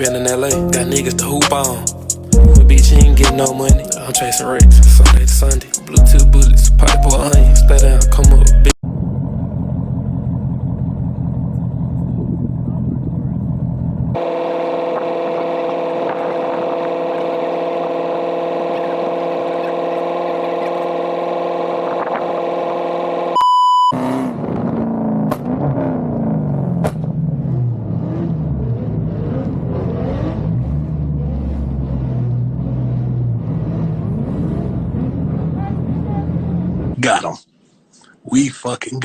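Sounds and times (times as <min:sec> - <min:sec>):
car engine revving: 0:00.0 - 0:37.0
short electronic beep: 0:23.4 - 0:24.0.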